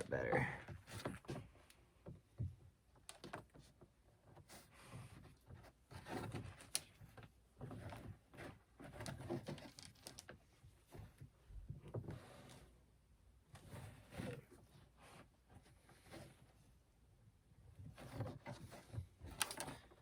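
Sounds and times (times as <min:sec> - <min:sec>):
cord rustling in hands: 0:03.1 - 0:12.6, 0:17.8 - 0:20.0.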